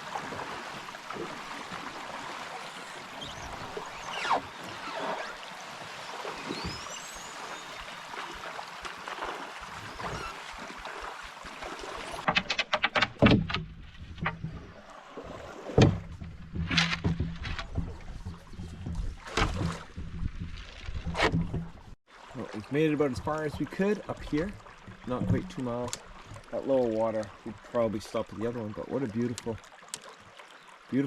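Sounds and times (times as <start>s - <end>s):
river water flowing: 0.0s - 20.0s, 21.8s - 31.0s
canoe paddle strokes: 0.0s - 30.7s.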